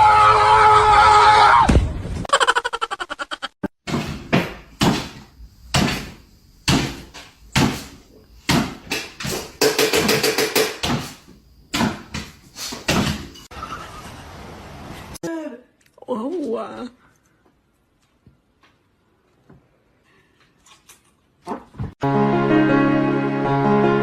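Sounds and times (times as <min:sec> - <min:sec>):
knocks and thumps: 0:03.8 - 0:13.5.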